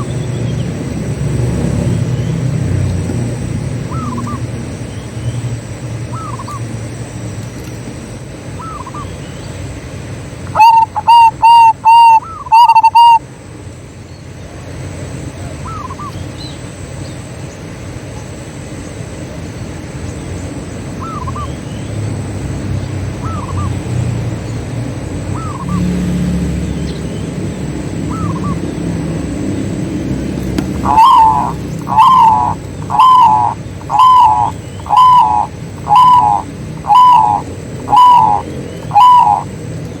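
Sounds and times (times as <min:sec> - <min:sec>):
dove cooing: 0:03.0 - 0:04.5, 0:10.5 - 0:13.2, 0:28.0 - 0:39.6.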